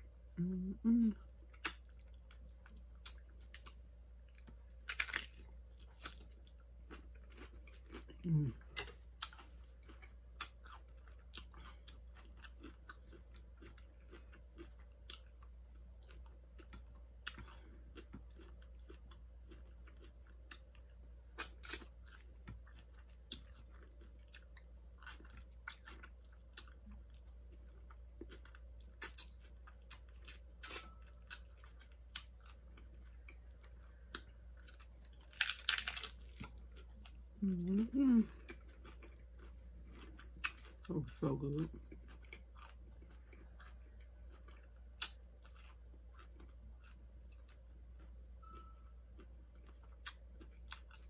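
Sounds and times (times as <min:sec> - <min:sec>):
steady low hum: 0:00.0 - 0:51.0
taco shell crunching: 0:01.6 - 0:20.8, 0:21.4 - 0:37.1.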